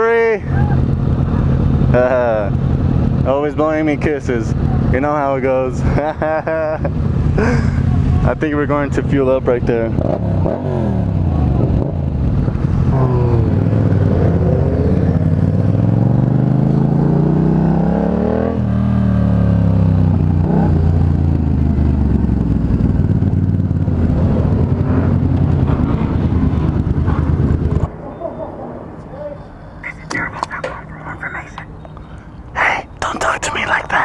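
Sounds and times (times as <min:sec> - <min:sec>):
motorcycle engine revving: 0:06.9 - 0:27.9.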